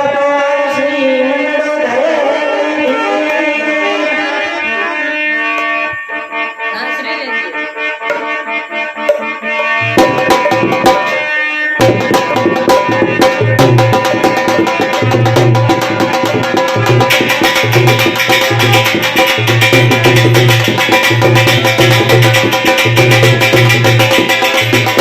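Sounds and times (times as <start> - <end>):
sustained melody instrument: 2.2 - 25.0
steady beat: 2.9 - 25.0
hand drums: 8.0 - 25.0.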